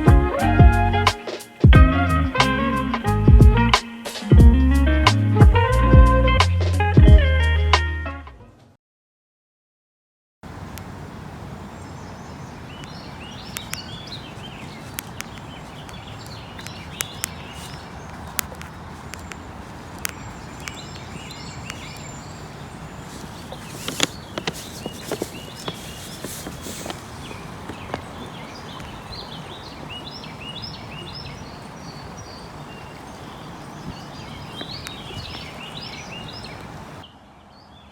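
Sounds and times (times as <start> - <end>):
birds chirping: 0.0 - 7.5, 10.5 - 37.9
sharp clicks and taps: 13.5 - 13.8, 14.9 - 17.4, 18.1 - 19.4.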